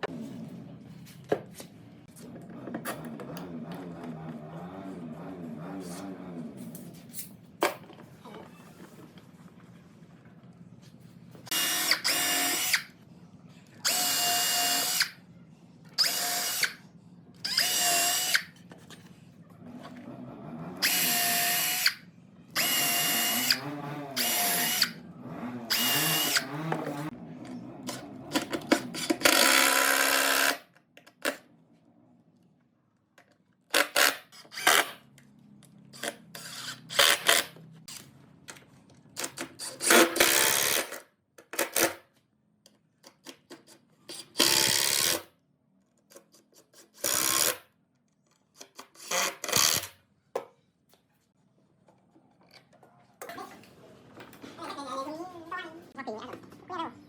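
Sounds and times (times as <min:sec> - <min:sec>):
electric drill whining: 0:11.5 - 0:12.9, 0:13.8 - 0:15.2, 0:16.0 - 0:16.8, 0:17.4 - 0:18.5, 0:20.7 - 0:22.0, 0:22.6 - 0:25.0, 0:25.6 - 0:27.1.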